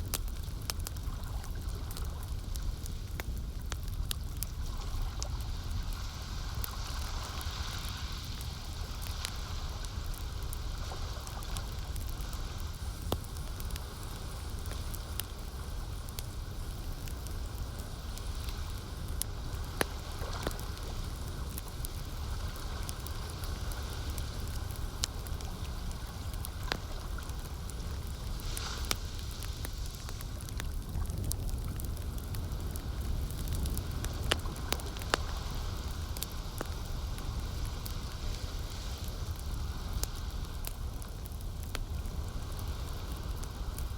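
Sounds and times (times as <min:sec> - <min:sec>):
campfire crackling: 0:00.0 - 0:43.9
fire popping: 0:00.0 - 0:43.9
low rumble and hiss: 0:00.0 - 0:43.9.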